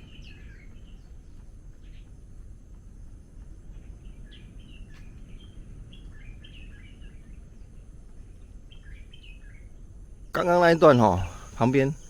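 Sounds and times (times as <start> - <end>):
small bird chirping: 10.4 - 12.0.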